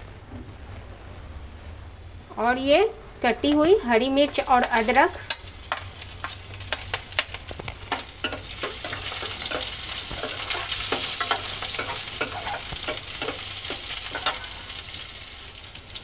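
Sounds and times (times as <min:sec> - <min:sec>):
food sizzling in hot oil: 0:03.4 - 0:16.0
metal ladle stirring against pan: 0:04.2 - 0:15.0.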